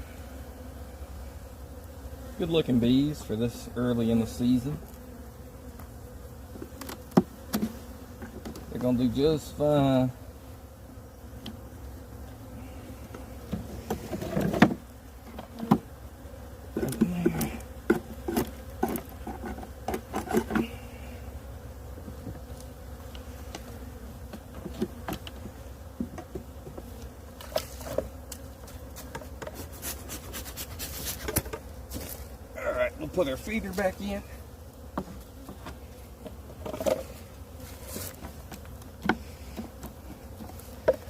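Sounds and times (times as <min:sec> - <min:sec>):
honeybees buzzing: 0:00.0 - 0:41.0
wooden hive frames knocking: 0:06.5 - 0:09.2, 0:13.0 - 0:16.0, 0:16.6 - 0:20.8, 0:21.8 - 0:22.5, 0:23.1 - 0:29.6, 0:31.1 - 0:32.0, 0:34.8 - 0:37.1, 0:38.1 - 0:41.0.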